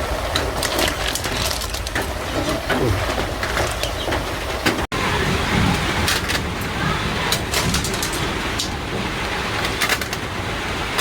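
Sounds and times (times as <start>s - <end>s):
sharp clicks and cracks: 7.3s - 10.3s.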